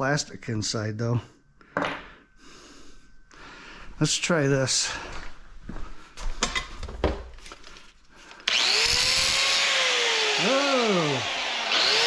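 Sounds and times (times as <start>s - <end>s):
power tool running: 8.4s - 12.0s.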